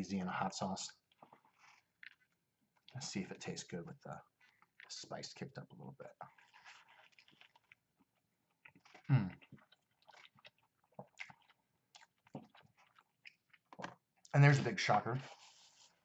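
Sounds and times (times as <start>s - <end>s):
chewing crispy sandwich: 0.9s - 16.0s
short low vocal sound: 9.1s - 9.4s.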